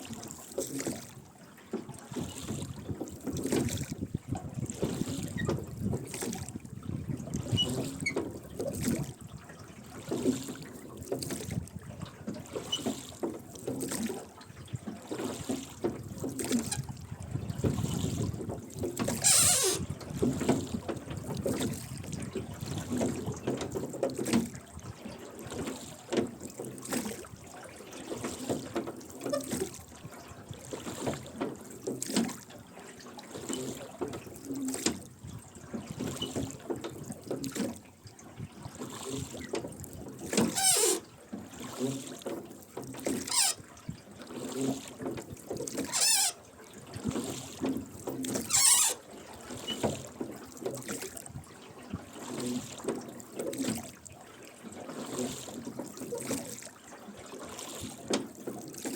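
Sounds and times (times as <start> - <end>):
oars splashing in water: 0.0 - 58.9
oarlocks creaking: 43.3 - 43.6, 45.9 - 46.4.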